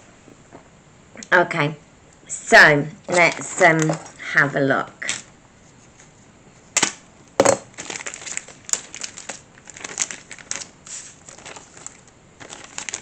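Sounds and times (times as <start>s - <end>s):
packaging crinkling: 6.8s - 13.0s
packaging crunch: 7.5s - 13.0s.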